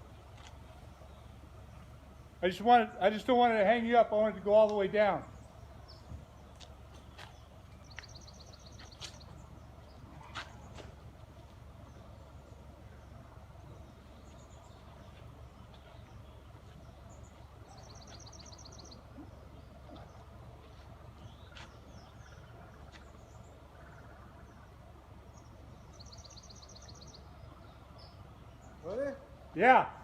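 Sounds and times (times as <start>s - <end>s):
faint low steady rumble: 0.0s - 30.0s
small birds chirping: 0.0s - 30.0s
bird trill: 5.2s - 10.9s, 11.9s - 30.0s.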